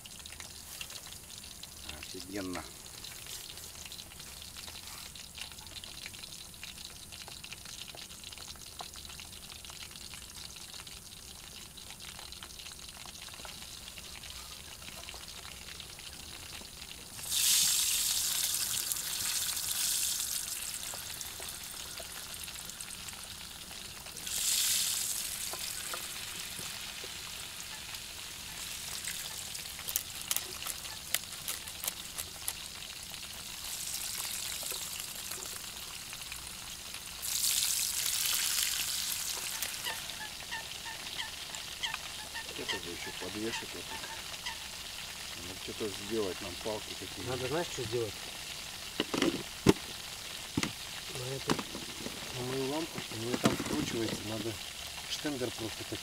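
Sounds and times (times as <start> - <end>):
chicken frying in deep oil: 0.0 - 56.0
oil spitting sharp pops: 48.9 - 54.3.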